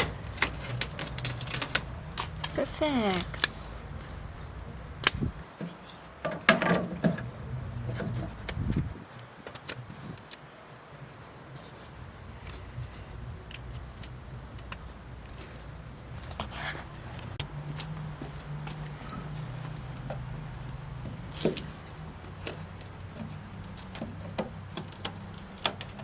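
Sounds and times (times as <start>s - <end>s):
parts knocking and scraping: 5.1s - 10.4s.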